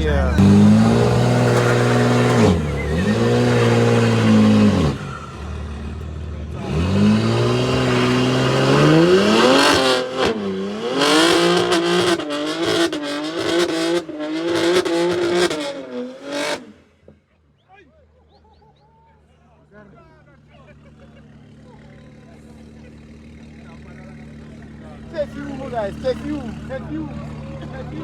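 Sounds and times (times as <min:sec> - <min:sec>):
performance car engine revving: 0:00.0 - 0:16.9.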